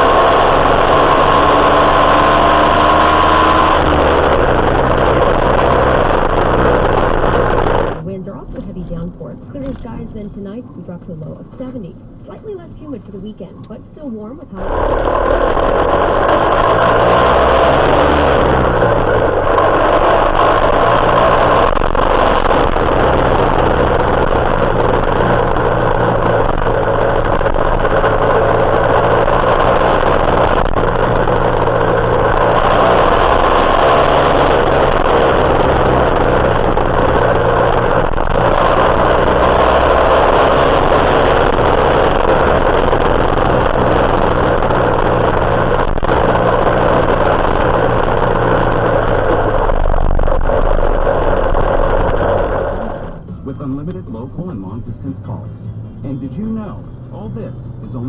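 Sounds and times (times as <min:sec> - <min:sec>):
two-stroke motorcycle engine running: 0:00.0 - 0:08.8, 0:14.6 - 0:53.2.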